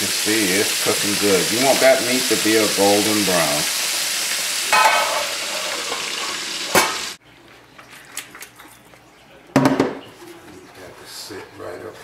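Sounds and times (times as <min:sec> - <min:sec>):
meat sizzling in a pan: 0:00.0 - 0:07.2.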